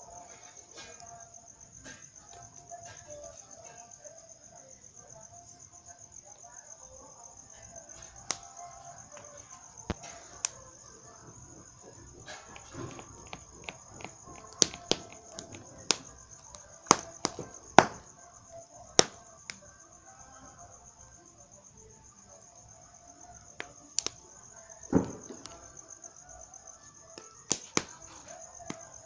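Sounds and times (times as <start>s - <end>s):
crickets chirring: 0.0s - 29.0s
sharp pops and cracks: 7.8s - 18.1s, 19.0s - 19.6s, 23.4s - 25.8s, 27.2s - 29.0s.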